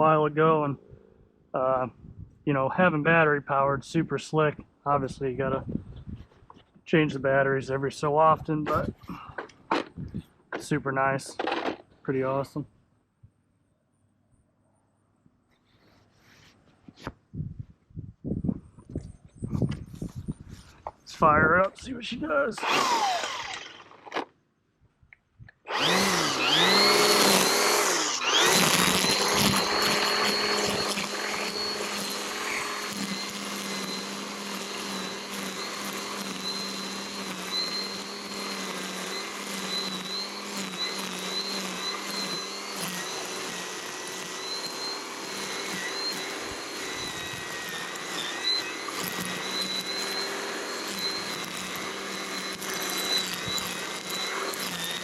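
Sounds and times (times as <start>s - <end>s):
battery blower whining: 19.6s - 24.2s, 25.5s - 55.0s.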